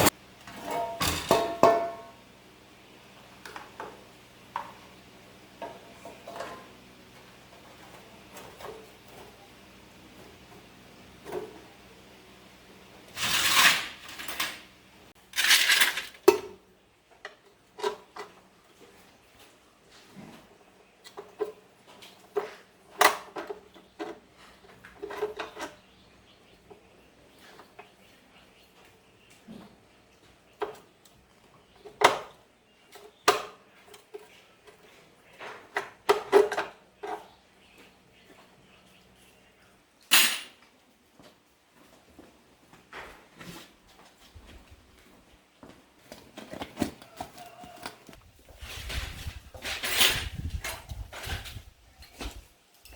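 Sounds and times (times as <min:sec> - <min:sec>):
objects scraping and rustling: 0:05.6 - 0:11.8, 0:13.0 - 0:16.2, 0:17.4 - 0:26.0, 0:41.2 - 0:44.8, 0:46.0 - 0:52.9.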